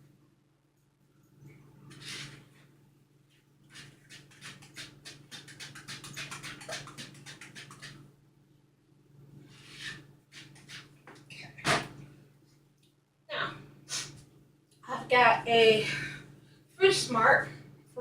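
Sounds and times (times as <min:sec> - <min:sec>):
steady low hum: 0:00.0 - 0:18.0
whisk beating batter in bowl: 0:03.7 - 0:08.0.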